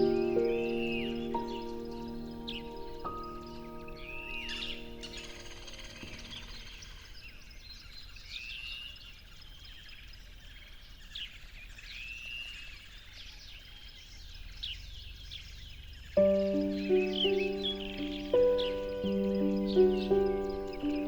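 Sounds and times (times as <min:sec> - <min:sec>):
bird whistled call: 0:00.0 - 0:07.0
birds chirping: 0:00.0 - 0:21.0.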